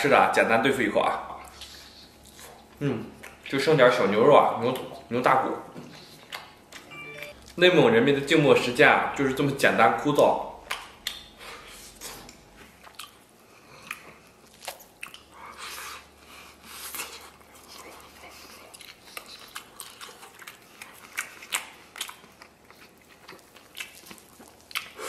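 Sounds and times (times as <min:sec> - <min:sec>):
person biting and chewing meat: 0:05.9 - 0:07.6, 0:10.6 - 0:25.0.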